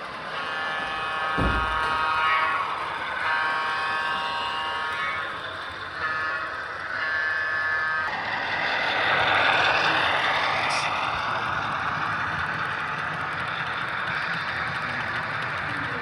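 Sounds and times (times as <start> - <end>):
model locomotive horn blast: 0.0 - 8.3
model diesel locomotive running: 0.0 - 16.0.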